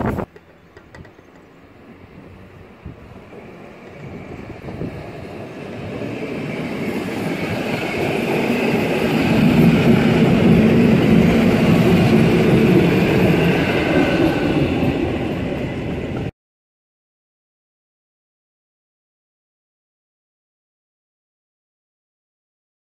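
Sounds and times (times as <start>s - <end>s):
train wheels rumbling past: 0.1s - 16.3s.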